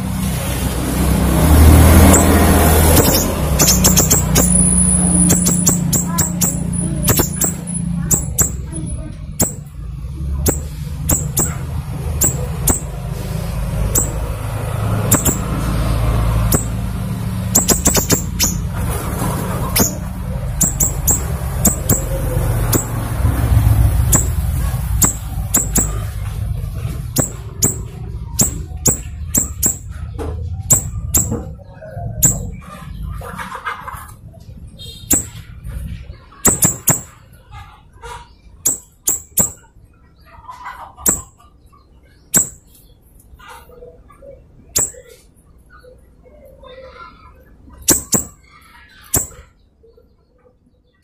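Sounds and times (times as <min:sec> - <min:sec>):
bird singing sharp high notes: 0:02.0 - 0:08.7, 0:10.5 - 0:11.6, 0:12.2 - 0:13.0, 0:13.9 - 0:15.6, 0:16.4 - 0:16.9, 0:17.5 - 0:18.7, 0:19.7 - 0:23.0, 0:24.0 - 0:24.4, 0:25.0 - 0:26.1, 0:27.2 - 0:29.9, 0:30.7 - 0:31.5, 0:32.2 - 0:32.6, 0:34.9 - 0:35.4, 0:38.6 - 0:39.7, 0:44.7 - 0:45.2, 0:47.9 - 0:49.5.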